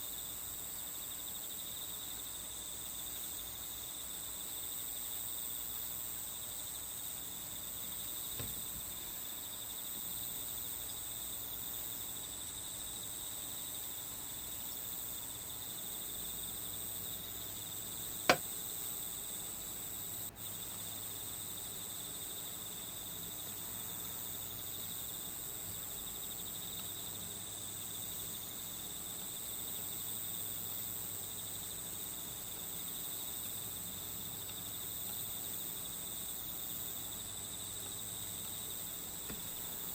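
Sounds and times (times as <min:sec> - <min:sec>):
crickets trilling: 0:00.0 - 0:39.9
faint tap: 0:08.4 - 0:08.8, 0:39.3 - 0:39.5.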